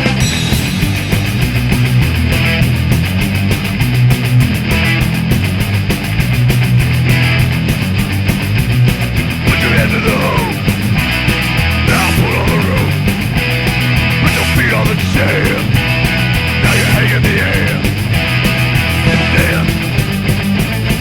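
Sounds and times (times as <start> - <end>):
fast punk rock music: 0.0 - 21.0
shouted vocals: 9.4 - 10.9, 11.8 - 13.4, 14.0 - 18.0, 18.8 - 20.0.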